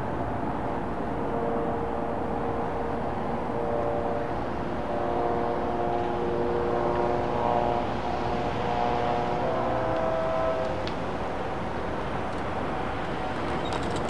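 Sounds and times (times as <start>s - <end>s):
train rumbling: 0.0s - 14.0s
whining tones shifting pitch: 0.8s - 10.9s.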